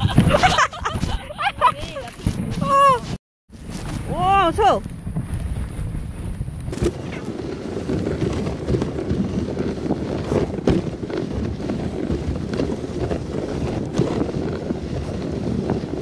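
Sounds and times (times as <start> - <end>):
sled knocking over bumps: 0.0 - 3.1, 4.1 - 16.0
sled runners scraping snow: 0.0 - 16.0
wind buffeting microphone: 0.0 - 16.0.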